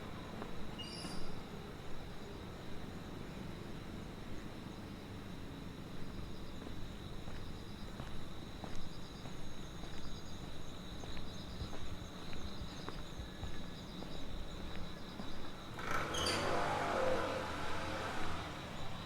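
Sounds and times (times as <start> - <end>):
insects trilling and chirping: 0.0 - 19.0
footsteps walking: 6.0 - 15.6.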